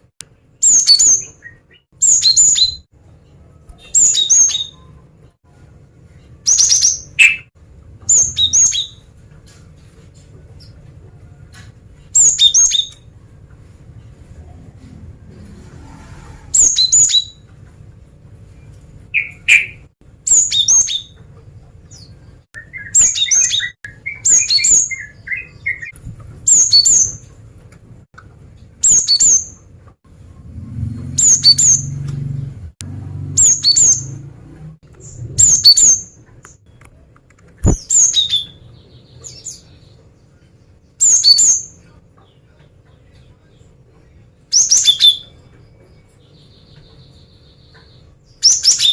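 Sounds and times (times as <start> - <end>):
bird sharp high-pitched calls: 33.4 - 34.2.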